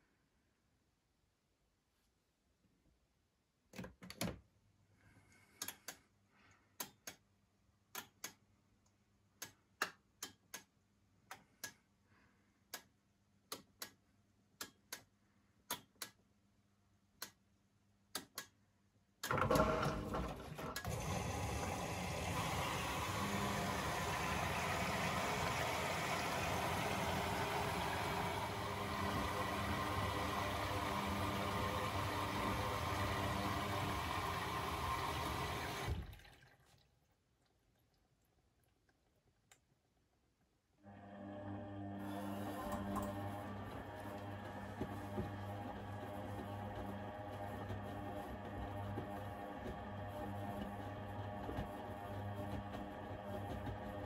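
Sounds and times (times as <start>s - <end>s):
water filling machine: 19.2s - 37.1s, 40.8s - 54.0s.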